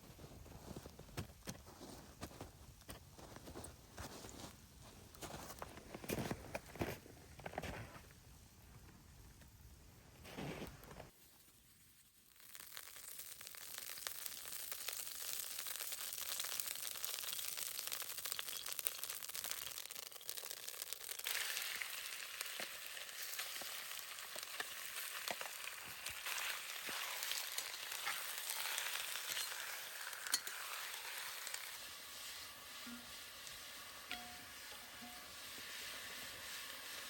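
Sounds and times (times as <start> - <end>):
food sizzling in a pan: 11.1 - 37.0
oil popping and crackling: 12.0 - 37.0.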